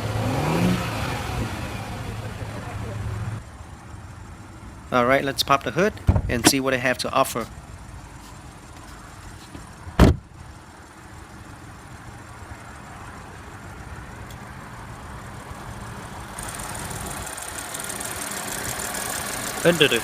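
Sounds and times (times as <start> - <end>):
car engine idling: 0.0 - 20.0
hood release clunk: 6.0 - 6.6.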